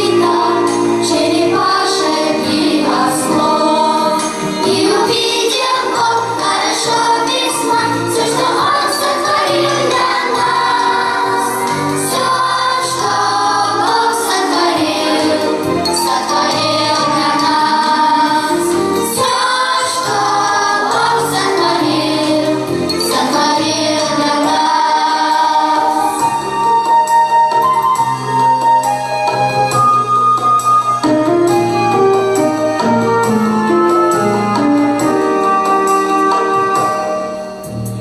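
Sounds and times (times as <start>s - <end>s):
choir singing: 0.0s - 26.4s
instrumental accompaniment: 0.0s - 38.0s.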